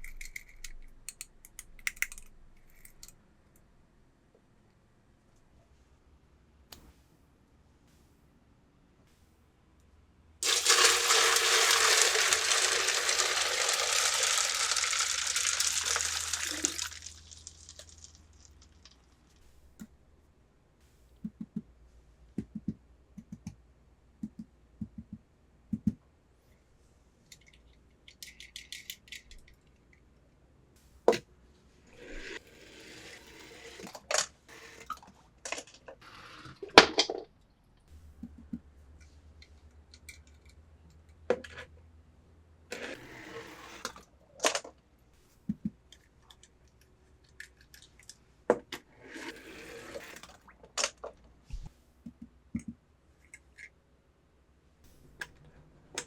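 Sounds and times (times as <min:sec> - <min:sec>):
small toys clicking: 0:00.0 - 0:03.2, 0:10.4 - 0:19.4, 0:27.3 - 0:29.7
rustling: 0:10.4 - 0:19.6.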